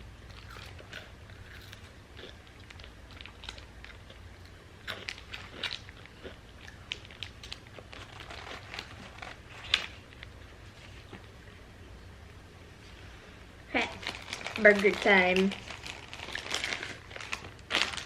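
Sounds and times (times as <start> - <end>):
person chewing crunchy food: 0.3 - 10.3.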